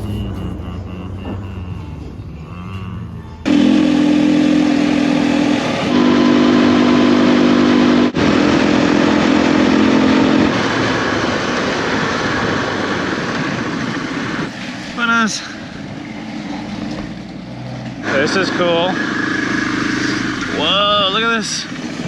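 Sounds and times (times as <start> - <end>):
motorcycle engine cruising: 0.0 - 15.0, 15.7 - 22.0.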